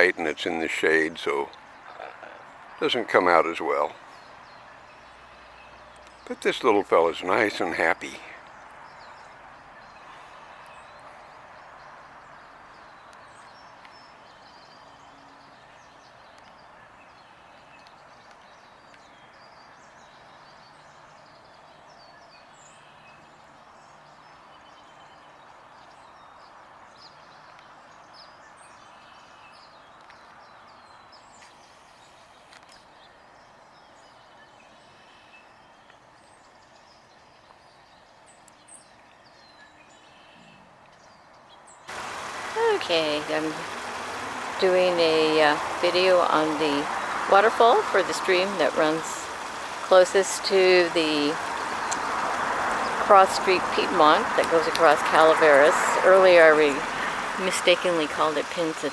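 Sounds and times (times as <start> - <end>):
small birds chirping: 0.0 - 25.4, 41.9 - 58.9.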